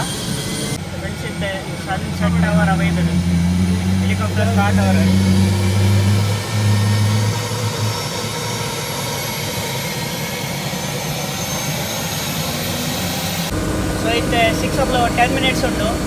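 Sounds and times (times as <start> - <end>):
helicopter turbine engine starting: 0.0 - 16.0
low hum: 0.0 - 16.0.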